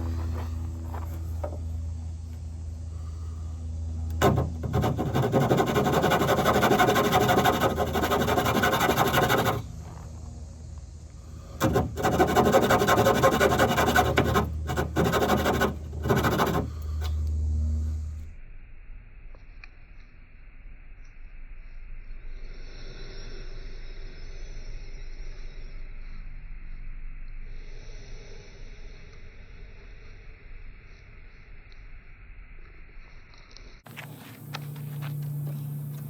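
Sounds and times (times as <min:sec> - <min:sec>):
rapid rasping of cutting wood: 0:04.1 - 0:09.7, 0:11.5 - 0:17.1.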